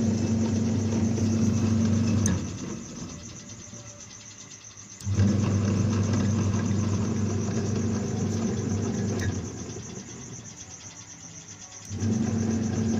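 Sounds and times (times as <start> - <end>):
electric motor humming: 0.0 - 3.5, 5.0 - 10.5, 11.8 - 12.9.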